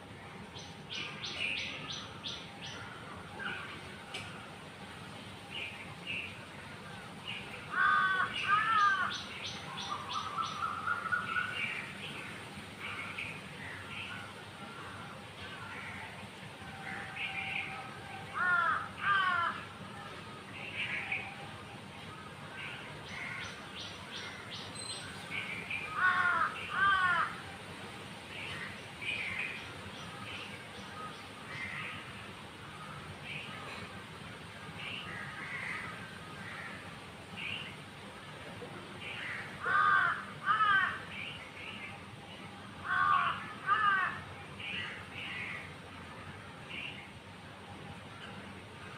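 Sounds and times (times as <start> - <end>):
harsh bird calls: 7.4 - 12.2
loud calls of larger bird: 7.7 - 11.8, 16.8 - 19.7, 25.8 - 27.5, 39.1 - 41.1, 42.8 - 45.7.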